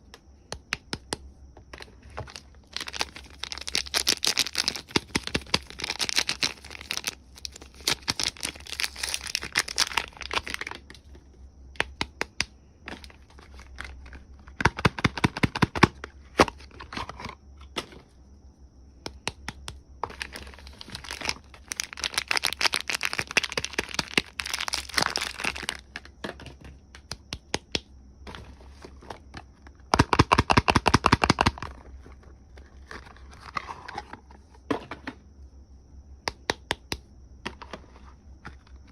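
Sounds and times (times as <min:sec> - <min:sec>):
wrapper crinkling and tearing: 0:02.3 - 0:10.8, 0:20.1 - 0:25.8.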